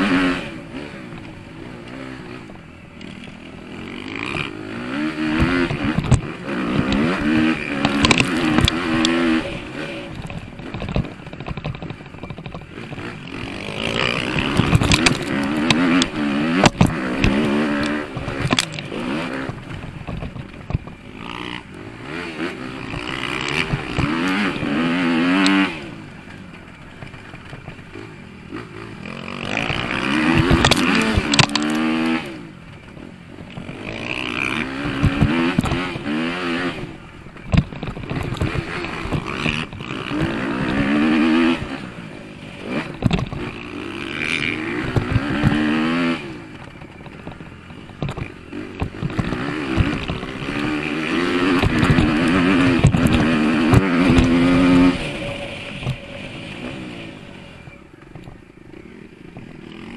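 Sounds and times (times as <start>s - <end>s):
motocross bike engine revving: 0.0s - 59.9s
knocks and clatter from track: 5.2s - 21.6s, 29.1s - 42.0s, 42.6s - 58.5s.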